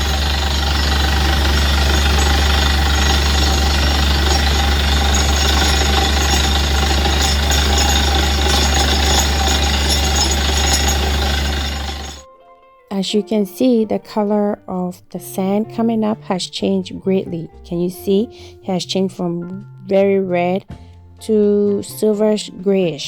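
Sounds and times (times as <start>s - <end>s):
drilling rig running: 0.0s - 12.2s
strong low hum: 0.0s - 12.2s.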